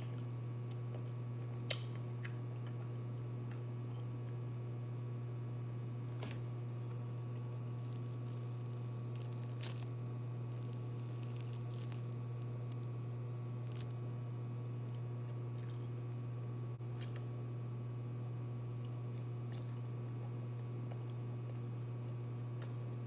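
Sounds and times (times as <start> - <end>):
steady low hum: 0.0 - 23.0
wet crunchy chewing: 0.1 - 4.4, 7.3 - 14.0.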